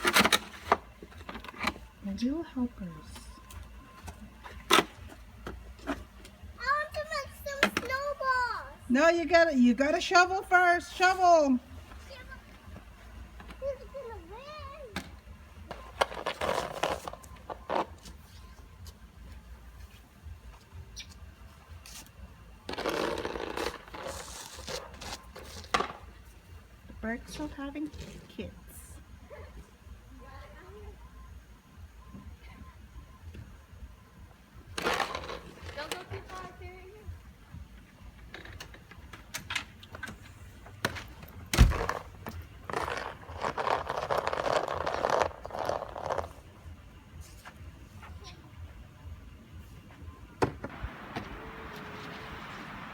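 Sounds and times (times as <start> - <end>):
snow shovel scraping snow: 16.0 - 18.1, 22.7 - 25.7, 42.7 - 46.3.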